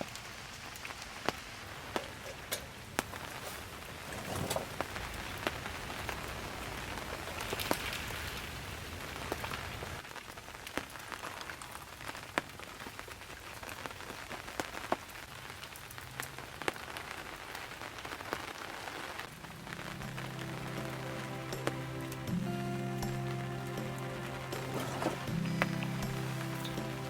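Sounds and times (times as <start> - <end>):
raindrops tapping: 0.0 - 7.9, 19.2 - 27.0
steady rain falling: 0.0 - 27.0.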